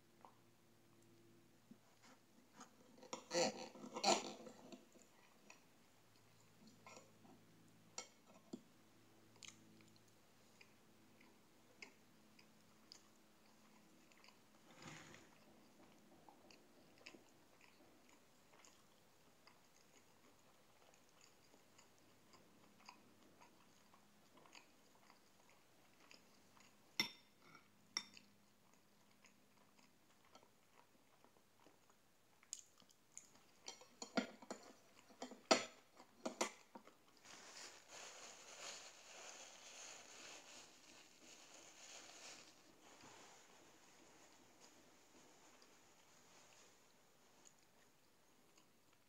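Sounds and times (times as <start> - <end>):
quiet chewing: 0.1 - 49.0
napkin rustling: 37.2 - 46.0.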